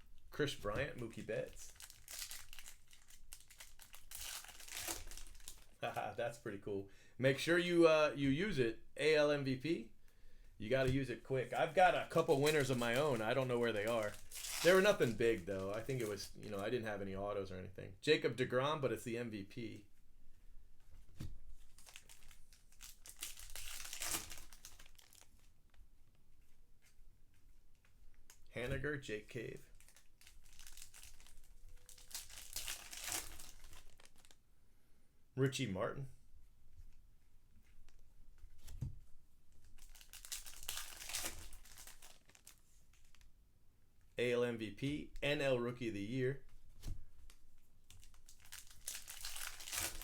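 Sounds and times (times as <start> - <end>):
wrappers crinkling and tearing: 1.2 - 6.0, 11.6 - 16.6, 21.6 - 25.6, 29.7 - 34.4, 39.6 - 43.3, 47.2 - 50.0.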